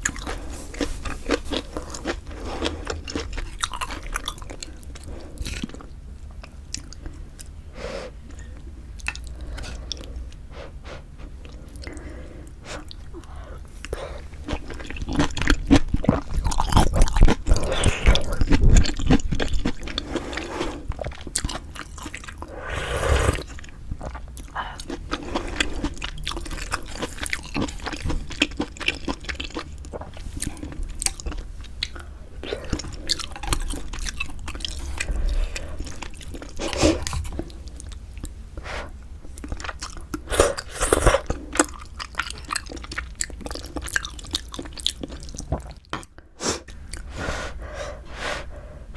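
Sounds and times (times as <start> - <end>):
wet chewing: 0.0 - 7.5, 11.4 - 38.4, 39.3 - 47.1
slurping noodles: 22.4 - 23.7.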